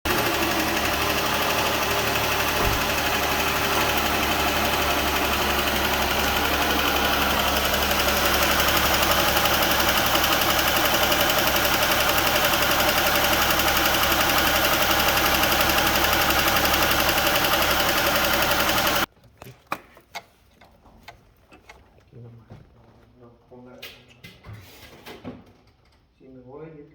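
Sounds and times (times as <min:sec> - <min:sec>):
car engine running: 0:00.0 - 0:19.1.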